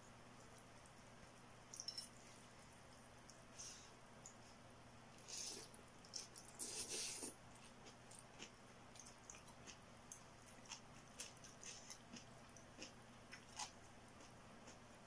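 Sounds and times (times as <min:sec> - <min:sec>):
wet chewing and lip-smacking: 0:05.4 - 0:15.0.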